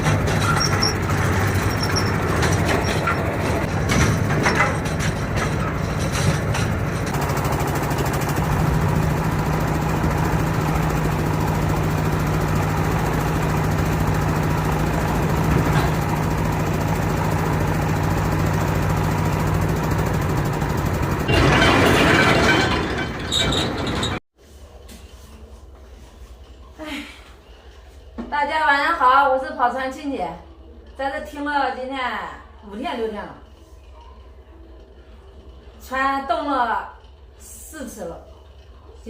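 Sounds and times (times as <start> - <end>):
boat engine humming: 0.0 - 21.5.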